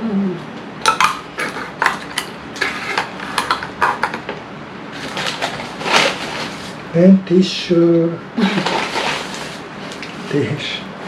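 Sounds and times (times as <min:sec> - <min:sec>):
takeout packaging rustling: 0:04.9 - 0:06.8, 0:08.4 - 0:10.5.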